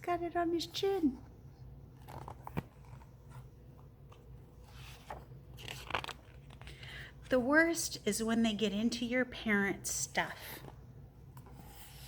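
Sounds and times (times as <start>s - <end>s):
paper rustling: 4.1s - 6.9s.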